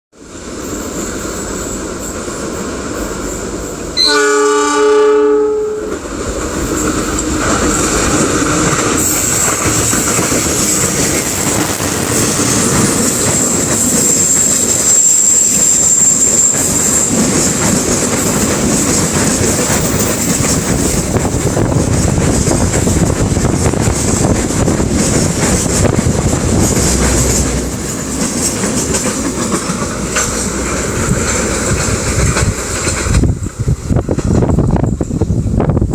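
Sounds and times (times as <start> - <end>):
train running past: 0.2 - 35.9
train horn blast: 4.0 - 6.0.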